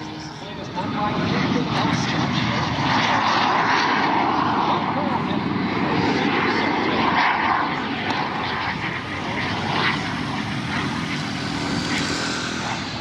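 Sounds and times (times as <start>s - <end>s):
plane engine flying past: 0.0s - 13.0s.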